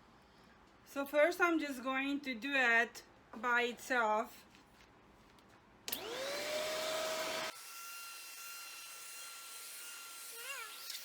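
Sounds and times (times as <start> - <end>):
stick vacuum motor whine: 5.9 - 7.6.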